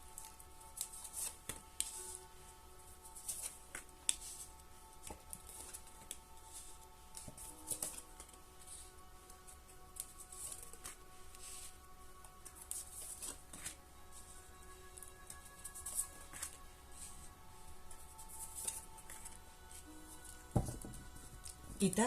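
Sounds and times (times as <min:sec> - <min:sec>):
quiet background music: 0:00.0 - 0:22.0
cards being shuffled: 0:00.1 - 0:02.3, 0:03.0 - 0:17.3, 0:17.9 - 0:21.9.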